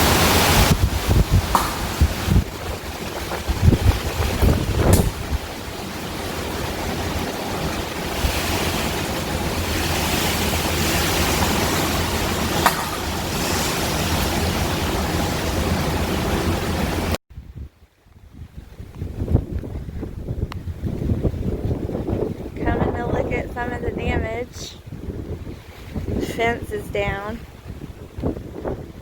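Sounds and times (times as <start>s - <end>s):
wind and rain buffeting microphone: 0.0s - 29.0s.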